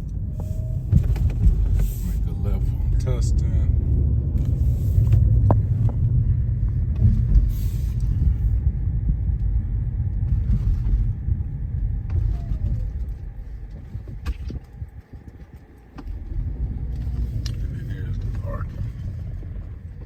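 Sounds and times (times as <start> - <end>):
road and engine rumble in car: 0.0 - 20.0.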